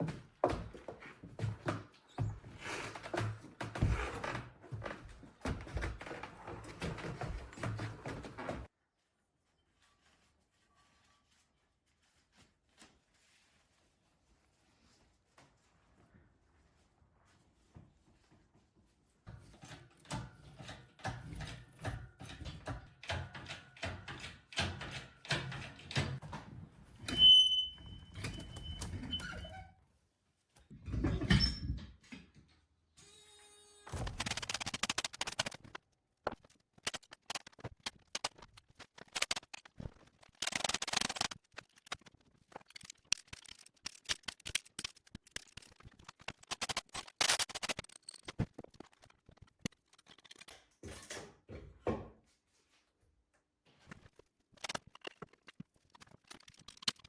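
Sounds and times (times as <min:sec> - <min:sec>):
brief high squeal: 0:27.1 - 0:29.5.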